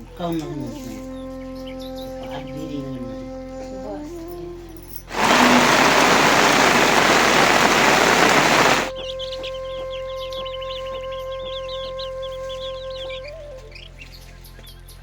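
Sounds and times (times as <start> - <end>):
loud even rushing noise: 5.1 - 8.9
steady hum: 5.1 - 8.9.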